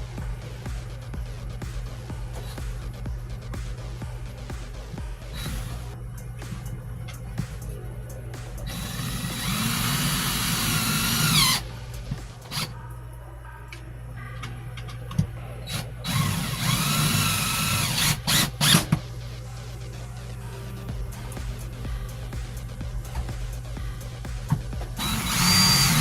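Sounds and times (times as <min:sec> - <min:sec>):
power drill driving screws: 0:08.7 - 0:11.6, 0:15.7 - 0:19.0, 0:25.0 - 0:26.0.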